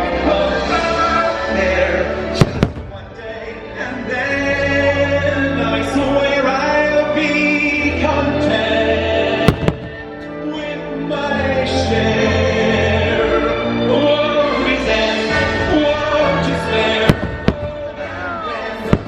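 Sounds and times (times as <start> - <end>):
orchestral music with choir: 0.0 - 19.0
firework bang: 2.4 - 3.0, 9.5 - 10.1, 17.1 - 18.0.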